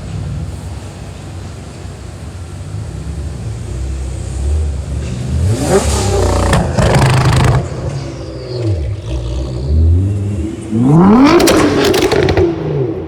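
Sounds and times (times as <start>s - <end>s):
car engine revving: 2.8s - 13.0s
exhaust bang: 4.8s - 13.0s.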